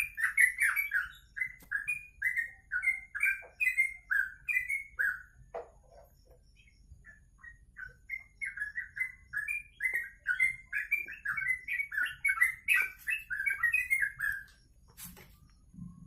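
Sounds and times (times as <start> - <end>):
songbird singing whistled notes: 0.0 - 16.0.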